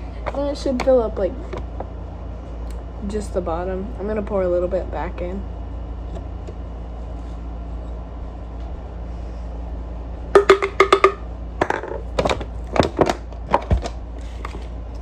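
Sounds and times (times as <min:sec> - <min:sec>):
steady low hum: 0:00.0 - 0:15.0
utensils and containers tapping: 0:10.4 - 0:12.4.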